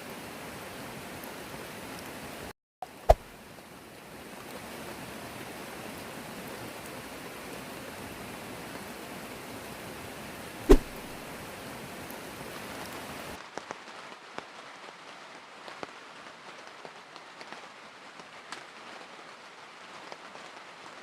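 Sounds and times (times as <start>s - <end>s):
rain hissing: 0.0s - 13.4s
loud thump: 10.7s - 11.2s
sharp knock: 10.7s - 11.2s.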